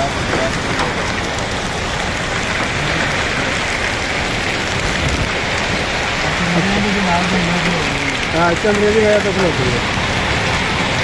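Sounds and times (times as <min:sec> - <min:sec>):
rain and hail pelting a car: 0:00.0 - 0:11.0.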